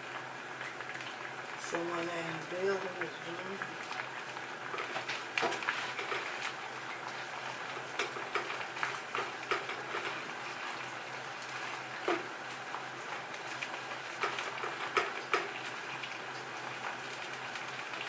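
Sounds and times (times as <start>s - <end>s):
shrimp sizzling in a skillet: 0.0s - 18.0s
spatula clicking and scraping pan: 4.7s - 10.8s, 11.5s - 12.3s, 13.4s - 15.8s.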